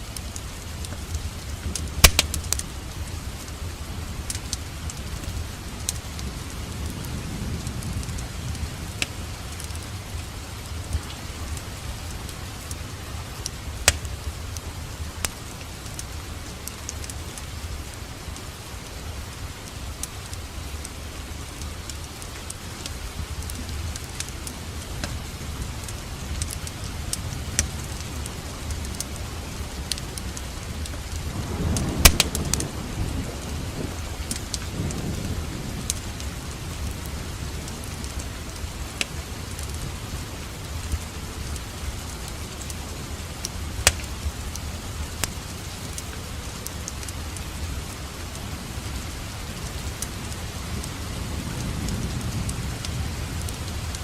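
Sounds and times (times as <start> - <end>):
steady rain: 0.0 - 54.0
wood fire crackling: 0.0 - 54.0
loud crack: 2.0 - 2.6, 32.0 - 32.6.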